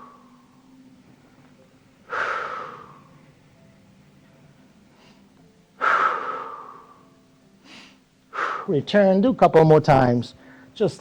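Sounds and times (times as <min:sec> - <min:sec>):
person exhaling forcefully: 0:02.1 - 0:03.0, 0:05.8 - 0:06.9.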